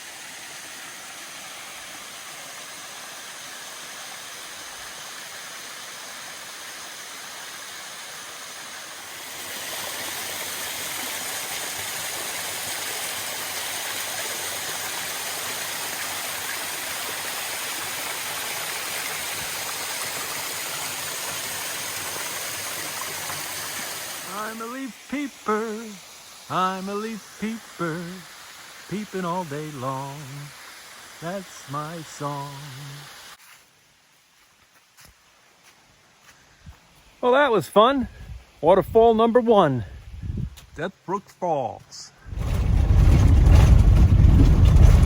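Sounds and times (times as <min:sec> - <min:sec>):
waterfall rushing and splashing: 0:00.0 - 0:33.4.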